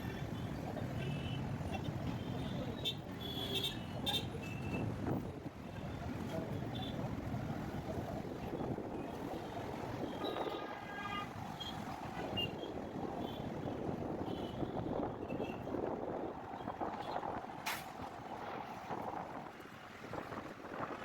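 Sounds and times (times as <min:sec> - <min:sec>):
road traffic: 0:00.0 - 0:21.0
wind buffeting microphone: 0:11.9 - 0:21.0.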